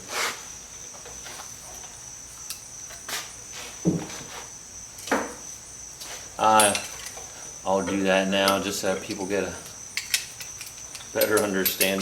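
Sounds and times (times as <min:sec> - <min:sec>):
metal clinks of hand tools: 0:06.5 - 0:07.2, 0:10.0 - 0:12.0.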